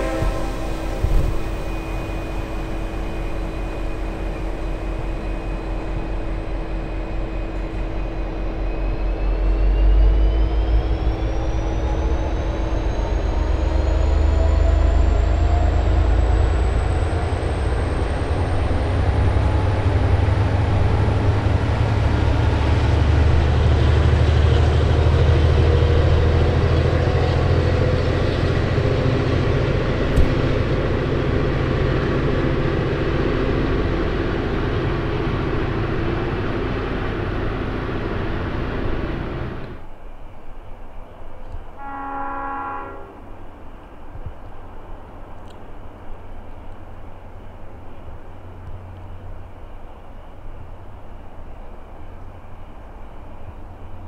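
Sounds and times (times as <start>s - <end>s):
high whine rising in pitch: 0.0s - 23.3s
diesel locomotive rumbling: 0.0s - 54.0s.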